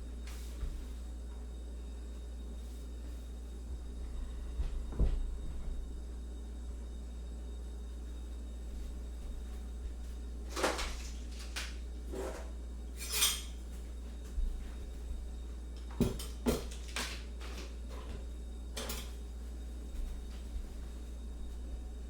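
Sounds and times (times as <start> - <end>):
steady low hum: 0.0 - 22.0
dishes and spoons clinking: 13.0 - 13.6, 18.8 - 19.2.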